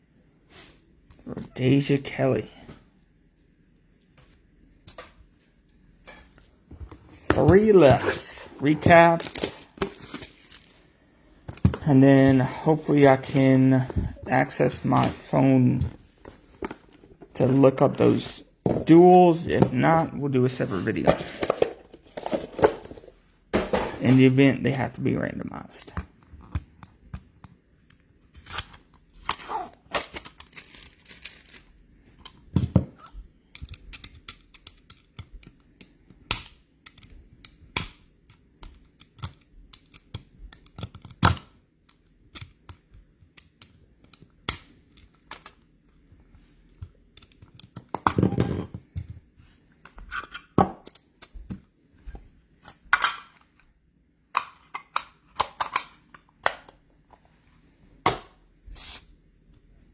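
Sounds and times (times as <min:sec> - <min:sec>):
wrappers rustling and crinkling: 0:07.4 - 0:11.0, 0:29.4 - 0:31.8
card packs tearing open: 0:07.6 - 0:10.9, 0:29.2 - 0:31.8.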